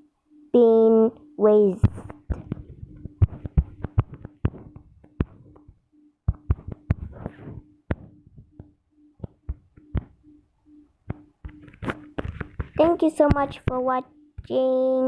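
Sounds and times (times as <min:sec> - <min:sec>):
faint hum: 0:00.0 - 0:15.0
taps on a touchscreen: 0:01.8 - 0:10.4, 0:11.0 - 0:14.6.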